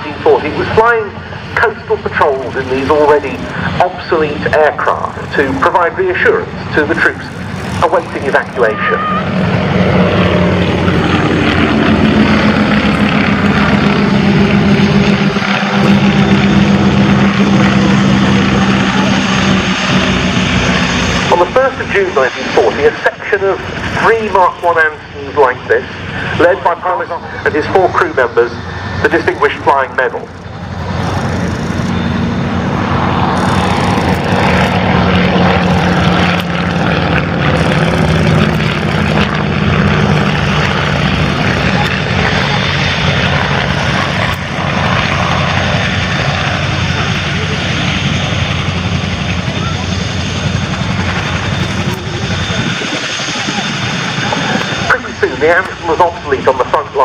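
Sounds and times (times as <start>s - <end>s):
propeller aircraft engines droning: 0.0s - 57.0s.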